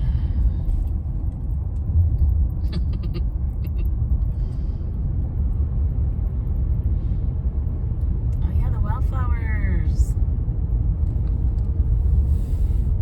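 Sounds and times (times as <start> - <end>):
car cabin rumble: 0.0 - 6.7.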